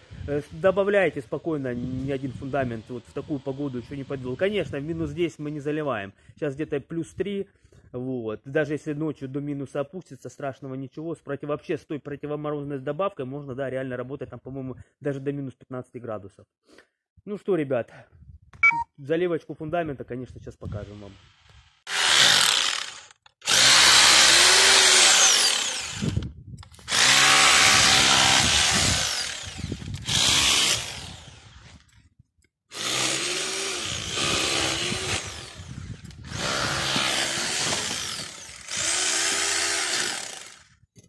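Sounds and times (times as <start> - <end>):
electric power drill running: 21.2 - 26.2, 26.9 - 31.9, 32.7 - 40.7.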